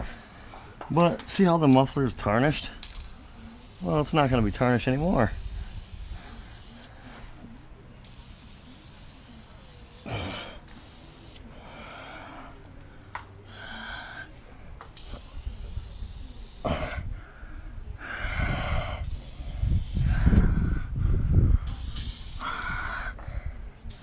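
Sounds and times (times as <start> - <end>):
aerosol can spraying hiss: 2.8 - 6.9, 8.0 - 11.5, 14.8 - 16.9, 18.8 - 20.4, 21.6 - 22.8.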